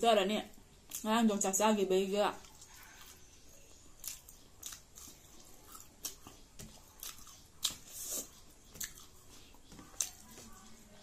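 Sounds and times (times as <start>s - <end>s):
chewing with wet lip smacks: 3.9s - 10.4s.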